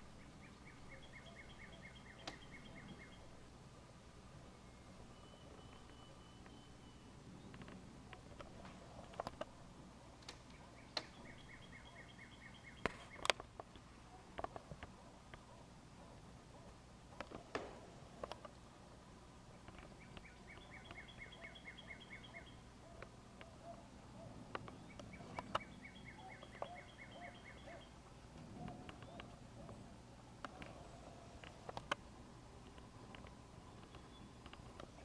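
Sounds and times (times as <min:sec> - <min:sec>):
lower bird call notes: 0:00.1 - 0:03.4, 0:20.0 - 0:29.8
faint clicks: 0:30.4 - 0:35.0.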